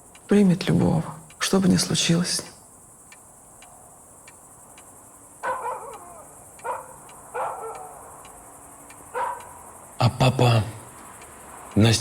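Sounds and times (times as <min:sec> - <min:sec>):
clock ticking: 0:00.0 - 0:02.4, 0:03.0 - 0:12.0
dog barking: 0:05.4 - 0:08.2, 0:09.1 - 0:09.6.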